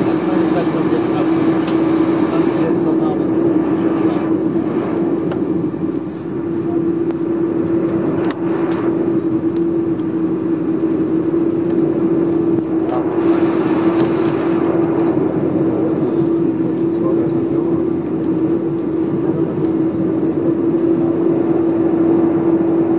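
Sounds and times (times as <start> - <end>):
aircraft cabin hum: 0.0 - 22.9
rushing air: 0.0 - 22.9.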